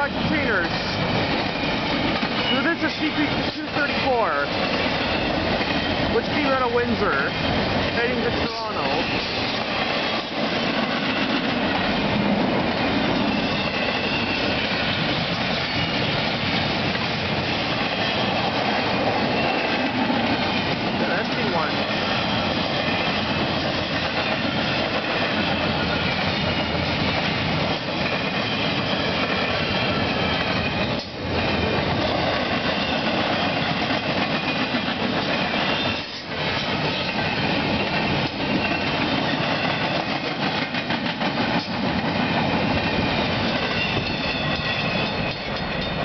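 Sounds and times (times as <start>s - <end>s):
freight train wheels clattering: 0.0s - 46.0s.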